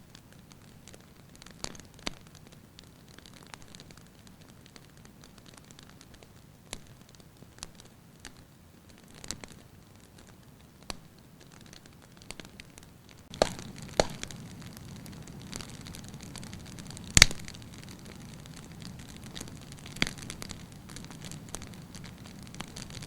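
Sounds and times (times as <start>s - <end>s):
firewood crackling and popping: 0.0s - 23.0s
fire hissing: 13.3s - 23.0s.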